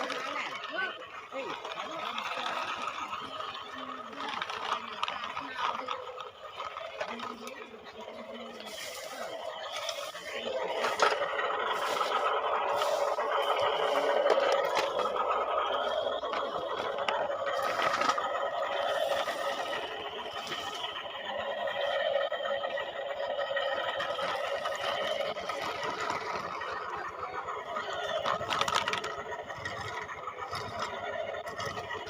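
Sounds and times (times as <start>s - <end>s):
small electric motors whirring: 0.0s - 32.0s.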